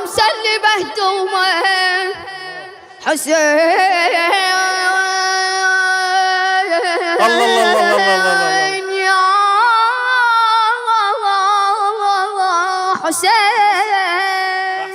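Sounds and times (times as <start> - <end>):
person singing a lament: 7.2 - 8.9.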